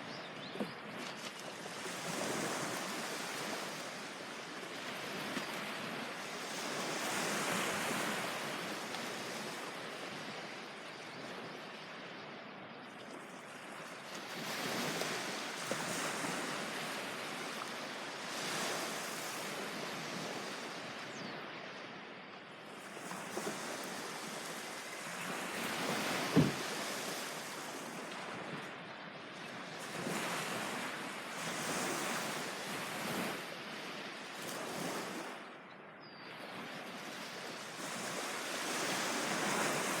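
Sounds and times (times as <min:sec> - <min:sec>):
ocean waves breaking on beach: 0:00.0 - 0:40.0
wind: 0:00.0 - 0:40.0
sharp thump: 0:26.3 - 0:26.6.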